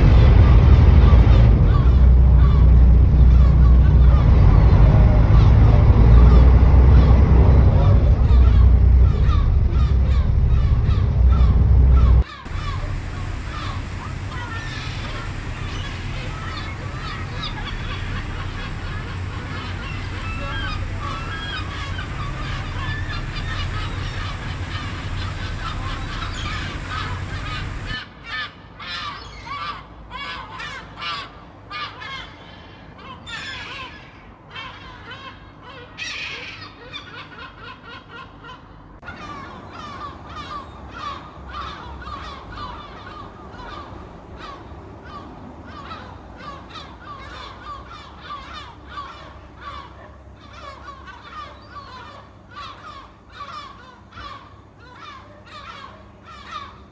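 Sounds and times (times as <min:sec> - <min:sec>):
steady low rumble: 0:00.0 - 0:28.0
seagulls calling: 0:00.0 - 0:56.9.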